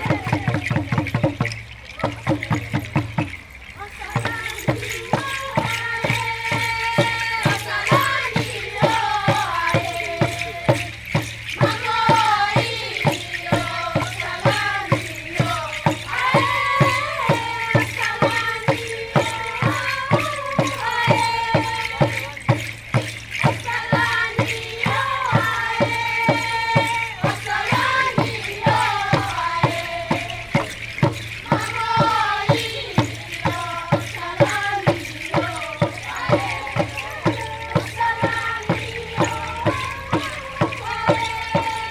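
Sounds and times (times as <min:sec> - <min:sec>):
steady drumbeat: 0:00.0 - 0:41.9.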